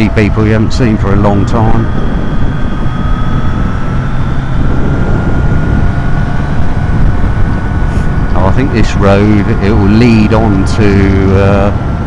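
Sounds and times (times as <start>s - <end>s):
faint rising whine: 0.0s - 12.0s
motorcycle engine and wind rush: 0.0s - 12.0s.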